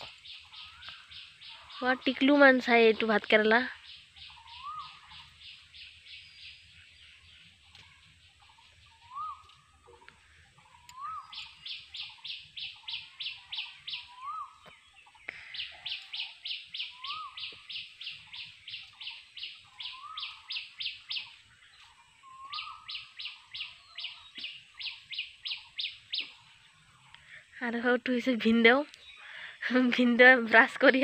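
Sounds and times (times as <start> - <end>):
bird sharp high chirps: 0.0 - 2.3, 3.8 - 26.5
bird whistling: 4.2 - 5.2, 9.0 - 9.5, 10.8 - 14.6, 15.6 - 21.4, 22.2 - 26.4.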